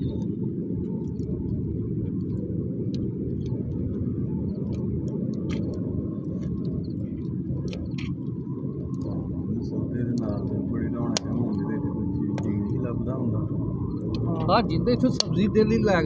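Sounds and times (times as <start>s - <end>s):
fire low rumble: 0.0s - 16.0s
wood fire crackling: 0.1s - 12.8s.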